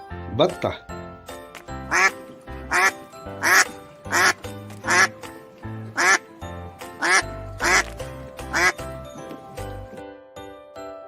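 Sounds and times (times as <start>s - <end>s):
children's background music: 0.0s - 11.0s
duck quacking: 1.8s - 5.2s, 5.8s - 6.3s, 6.9s - 8.8s.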